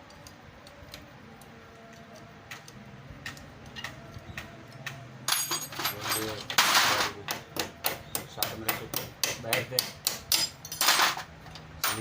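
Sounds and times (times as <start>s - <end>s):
spanner clicking on metal bolt: 2.5s - 5.7s.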